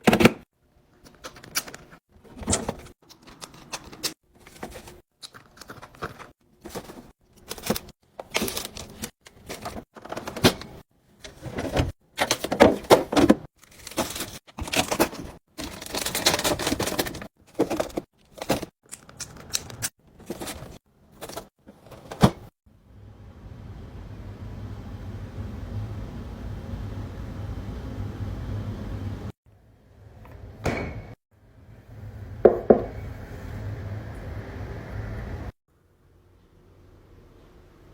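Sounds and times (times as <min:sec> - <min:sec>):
containers clattering in refrigerator: 0:01.2 - 0:22.5
low steady hum: 0:22.7 - 0:37.9.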